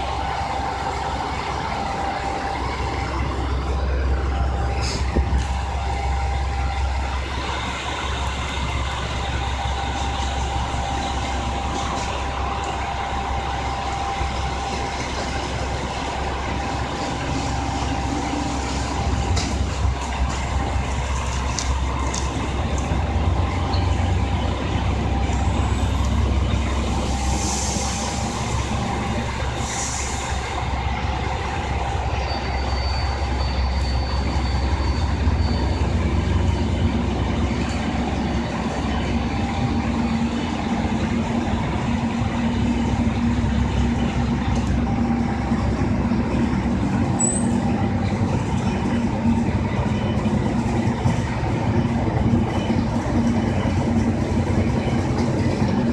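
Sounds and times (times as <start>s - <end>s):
diesel railcar engine rumble: 0.0s - 55.9s
brake air hisses: 27.0s - 30.5s.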